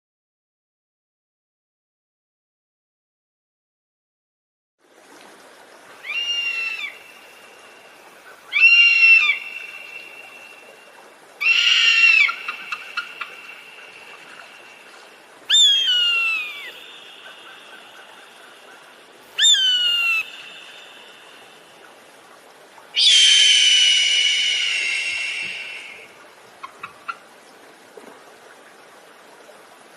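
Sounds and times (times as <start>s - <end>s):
bird shrill cries: 6.0s - 7.1s, 8.5s - 10.6s, 11.4s - 14.4s, 15.5s - 17.9s, 19.4s - 21.2s, 23.0s - 26.0s.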